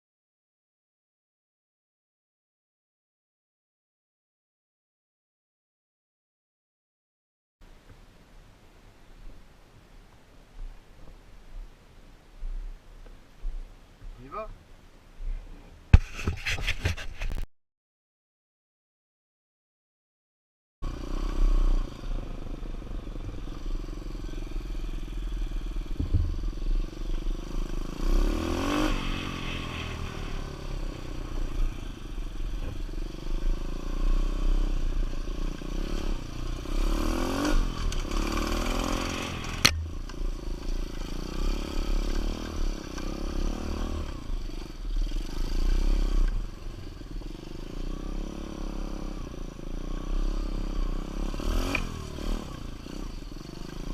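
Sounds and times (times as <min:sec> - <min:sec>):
dirt bike engine revving: 0:20.8 - 0:53.9.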